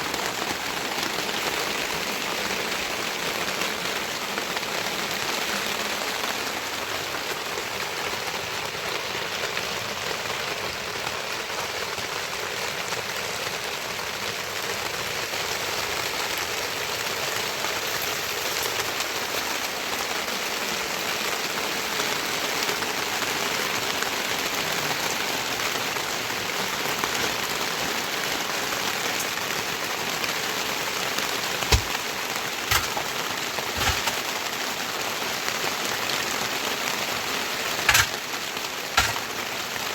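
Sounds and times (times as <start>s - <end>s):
heavy rain falling: 0.0s - 39.9s
sharp knocks: 31.7s - 32.0s, 32.7s - 33.1s, 37.9s - 38.2s, 39.0s - 39.2s.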